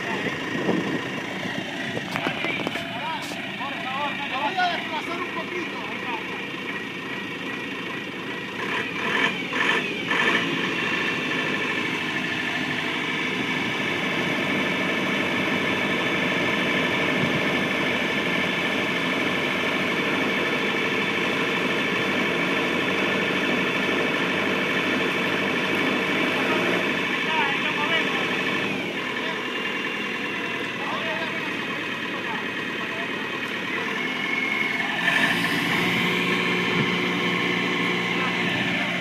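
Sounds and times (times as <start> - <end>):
engine running: 0.0 - 39.0.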